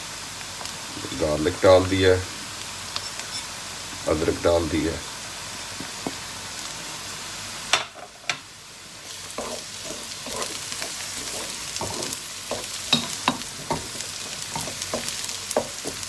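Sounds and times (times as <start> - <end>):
vegetables sizzling in hot oil: 0.0 - 16.0
wooden spoon scraping a pan: 9.0 - 16.0.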